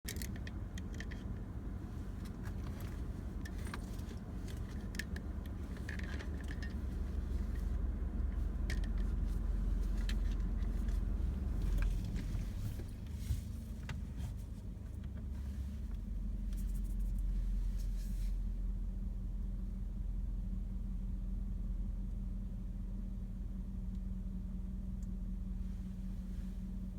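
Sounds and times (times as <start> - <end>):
small clicks and rattles: 0.1 - 1.5, 2.2 - 7.8, 8.4 - 11.0
vehicle engine idling: 0.1 - 26.9.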